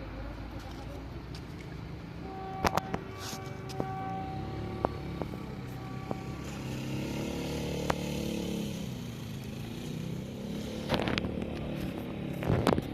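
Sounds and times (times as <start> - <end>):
diesel locomotive engine running: 2.1 - 12.9
clatter: 10.8 - 12.9.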